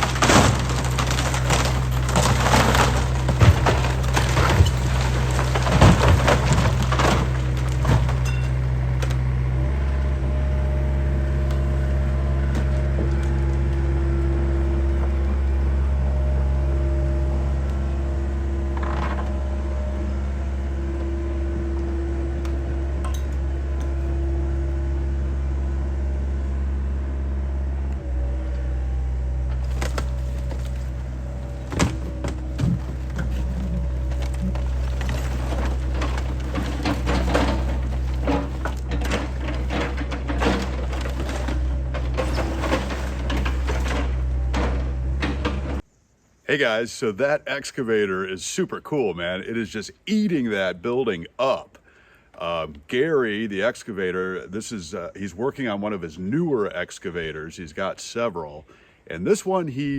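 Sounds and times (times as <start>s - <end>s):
debris crashing: 0.0s - 13.6s, 29.5s - 45.8s
wood cracking and splintering: 0.0s - 14.2s, 29.5s - 45.8s
excavator engine running: 0.0s - 45.9s
hydraulic whine: 0.0s - 45.9s.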